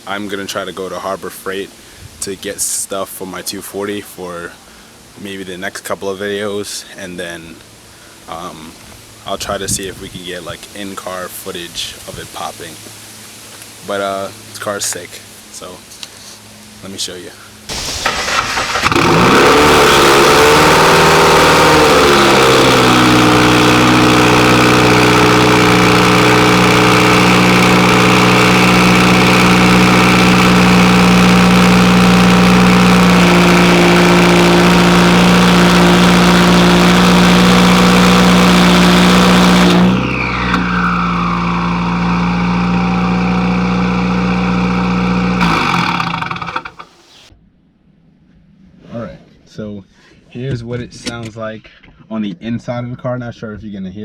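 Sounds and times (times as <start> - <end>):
falling whine: 17.7 - 46.9
car engine idling: 17.7 - 47.3.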